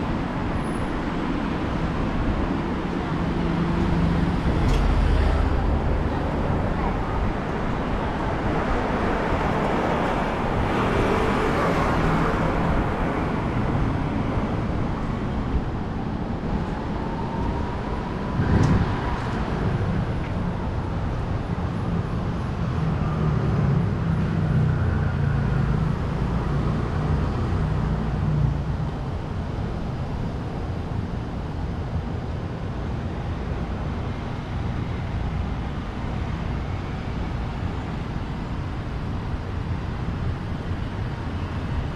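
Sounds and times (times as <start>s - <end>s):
vehicles passing: 0.0s - 31.7s.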